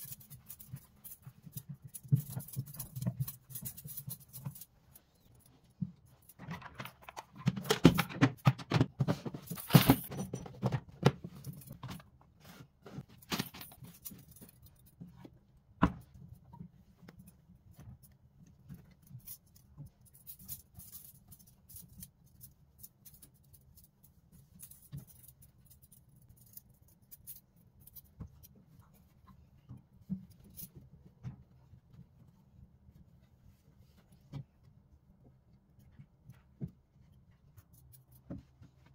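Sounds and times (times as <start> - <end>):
clicks clinks and rustling: 0.0 - 12.2, 13.0 - 15.3.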